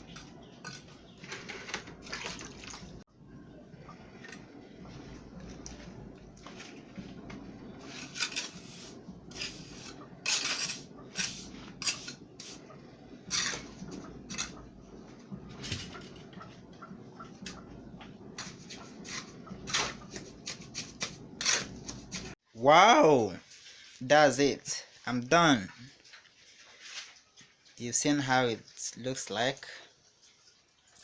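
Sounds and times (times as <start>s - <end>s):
trowel scraping wet cement: 7.7s - 14.6s, 18.4s - 22.4s.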